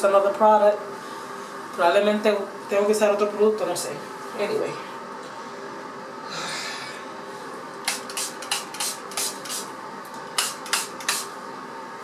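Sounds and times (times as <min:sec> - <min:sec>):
spray bottle spritzing: 0:07.9 - 0:09.7, 0:10.4 - 0:11.3.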